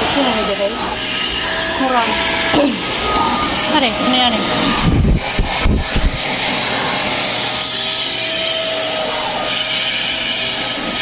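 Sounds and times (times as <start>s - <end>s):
handheld vacuum cleaner whine: 0.0s - 11.0s
low thumps: 4.8s - 6.3s.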